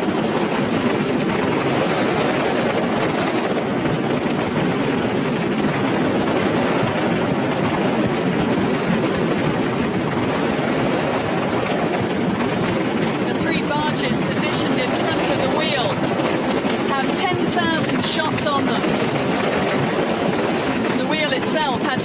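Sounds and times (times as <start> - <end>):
fireworks barrage: 12.6 - 22.0.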